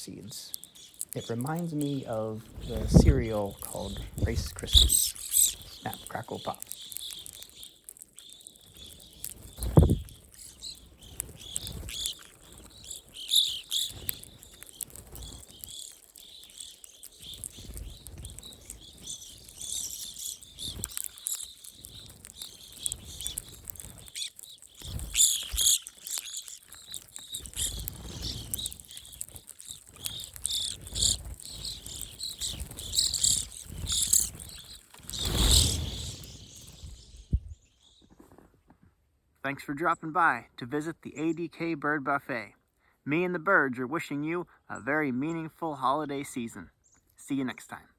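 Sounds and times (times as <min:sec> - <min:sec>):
birds chirping: 0:00.0 - 0:38.3, 0:39.5 - 0:42.5
birds cracking seeds: 0:00.0 - 0:38.6
low thumps: 0:02.7 - 0:03.3, 0:09.7 - 0:10.1.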